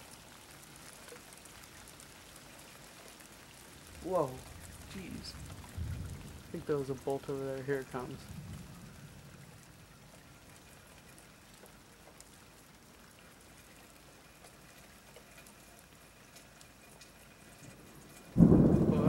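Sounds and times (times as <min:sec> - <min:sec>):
rain pattering: 0:00.0 - 0:19.0
thunderclap rumbling: 0:03.9 - 0:07.3, 0:07.9 - 0:10.1, 0:18.0 - 0:19.0.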